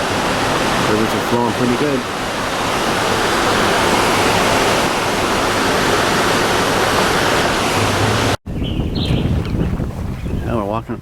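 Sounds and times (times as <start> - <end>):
river rushing loudly: 0.0 - 8.4.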